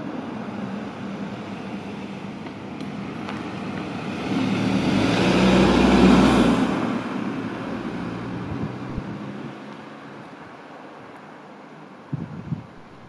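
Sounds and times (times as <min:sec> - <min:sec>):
tyre and road noise: 0:00.0 - 0:13.0
car engine driving past: 0:03.0 - 0:10.2.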